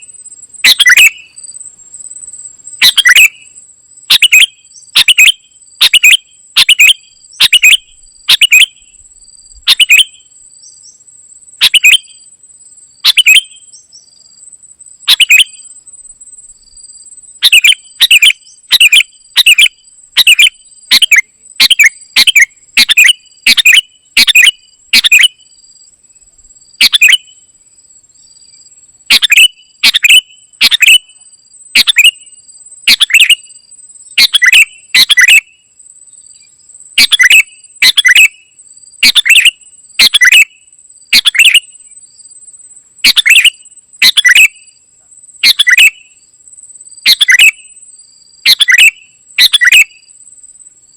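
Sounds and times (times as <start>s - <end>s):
bird chirping loudly: 0.6s - 1.4s, 2.8s - 3.5s, 4.1s - 9.0s, 9.7s - 10.3s, 11.6s - 12.2s, 13.0s - 13.9s, 15.1s - 15.7s, 17.4s - 25.4s, 26.8s - 27.4s, 29.1s - 31.2s, 31.8s - 32.3s, 32.9s - 33.5s, 34.2s - 35.6s, 37.0s - 38.4s, 39.0s - 41.7s, 43.0s - 44.6s, 45.4s - 46.1s, 47.1s - 47.7s, 48.5s - 50.0s.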